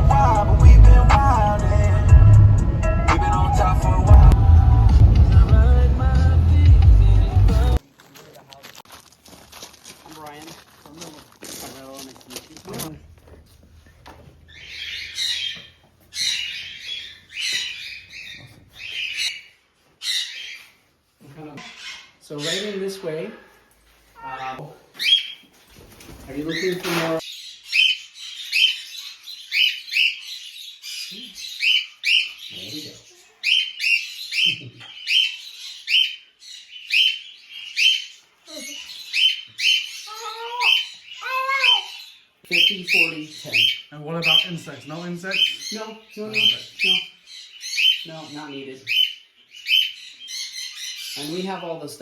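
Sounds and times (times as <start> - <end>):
parrots squawking: 14.4 - 20.8, 21.6 - 25.5, 26.4 - 51.8.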